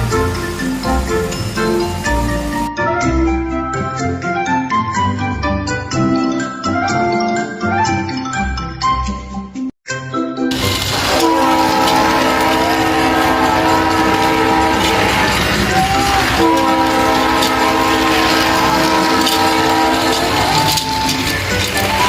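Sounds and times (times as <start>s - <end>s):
train wheels rattling: 0.0s - 2.7s, 10.5s - 22.0s
train horn blasts: 10.6s - 22.0s.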